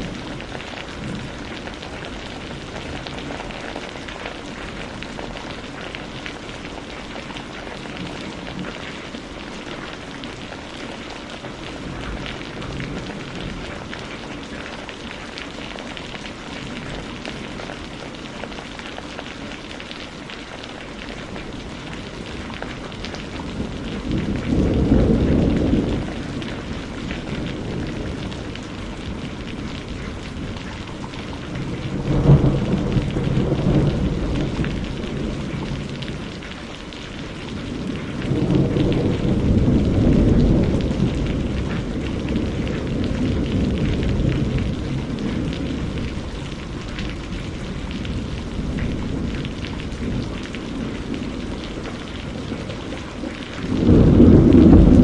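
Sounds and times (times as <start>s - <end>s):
steady rain falling: 0.0s - 55.0s
thunder rumbling: 21.6s - 55.0s.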